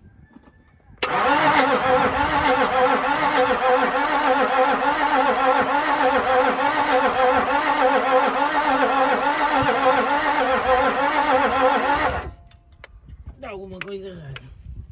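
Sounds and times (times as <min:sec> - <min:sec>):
starter motor cranking: 0:01.0 - 0:12.4.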